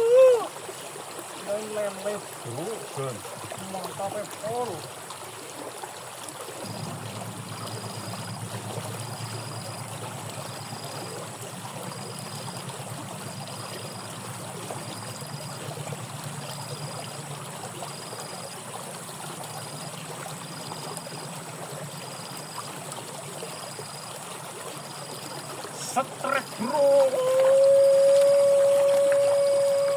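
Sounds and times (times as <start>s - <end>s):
water flowing along a ditch: 0.0s - 29.9s
low rumble: 6.7s - 10.5s.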